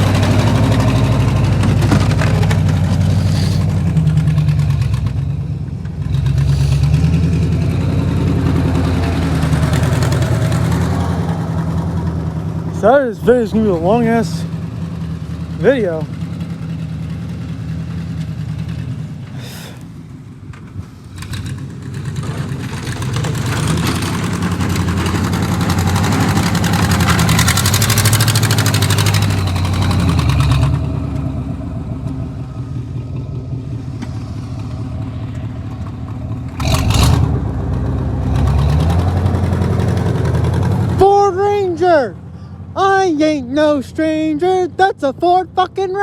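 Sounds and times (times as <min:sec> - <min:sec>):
vehicle engine revving: 0:00.0 - 0:43.8
rushing noise: 0:06.4 - 0:07.2.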